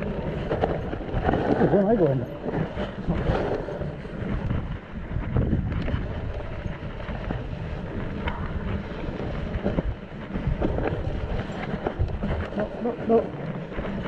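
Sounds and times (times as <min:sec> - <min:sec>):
bike rolling on muddy trail: 0:00.0 - 0:14.0
wind on microphone: 0:00.0 - 0:14.0.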